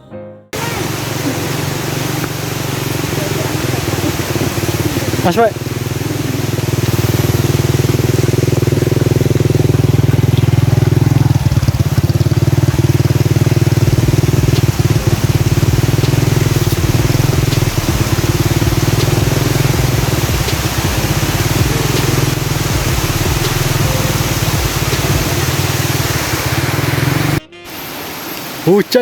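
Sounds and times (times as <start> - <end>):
motorcycle engine running: 0.6 - 27.4.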